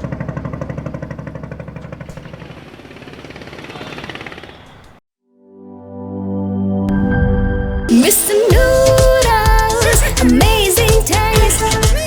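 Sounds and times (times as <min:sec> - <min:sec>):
engine chugging: 0:00.0 - 0:05.0, 0:08.5 - 0:12.0.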